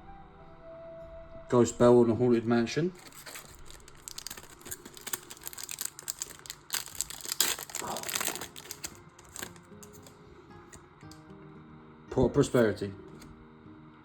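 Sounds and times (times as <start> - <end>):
foil wrapper crinkling and tearing: 3.0 - 10.2.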